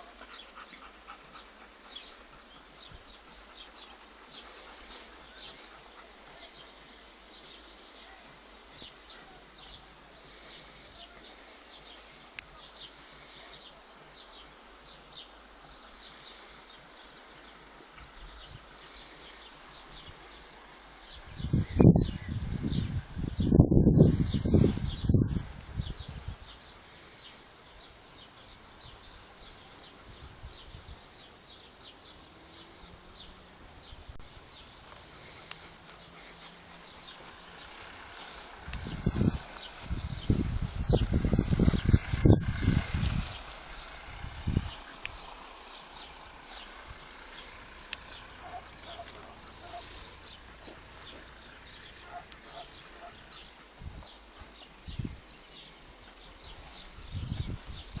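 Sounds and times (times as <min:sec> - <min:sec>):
faint outdoor hiss: 0:00.0 - 0:58.0
bird chirping: 0:26.0 - 0:58.0
low rumble: 0:34.4 - 0:52.4.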